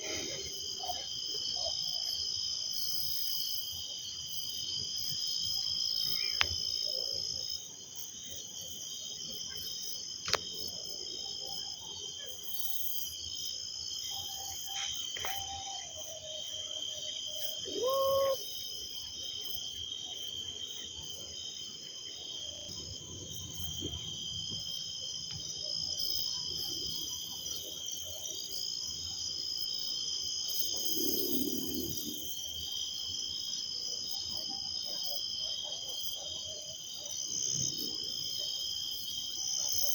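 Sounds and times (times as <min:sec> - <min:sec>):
crickets and insects chirring: 0:00.0 - 0:39.9
louder rising insect call: 0:17.4 - 0:18.6.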